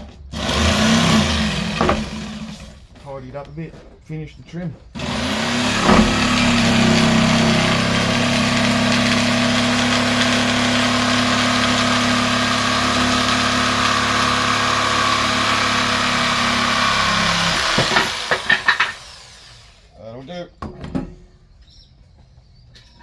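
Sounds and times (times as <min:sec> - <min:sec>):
power tool motor running with whine: 0:00.3 - 0:02.8, 0:05.0 - 0:19.9.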